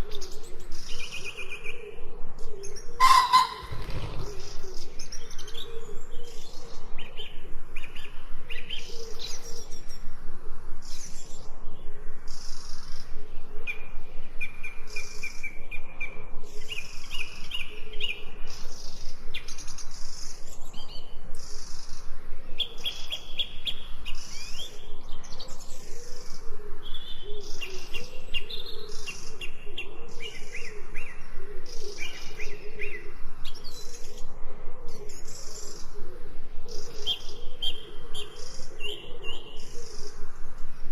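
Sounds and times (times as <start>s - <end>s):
songbirds chirping: 0.0s - 40.9s
rapid bird trills: 3.0s - 4.6s.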